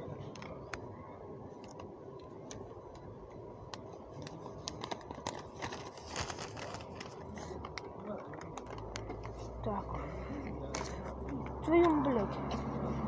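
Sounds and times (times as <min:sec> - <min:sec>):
low background hum: 0:00.0 - 0:13.0
faint clicks and ticks: 0:00.2 - 0:09.8.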